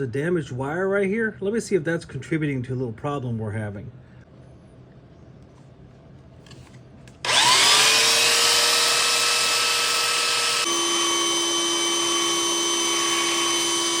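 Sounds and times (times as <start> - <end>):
belt sander whining: 7.2 - 14.0.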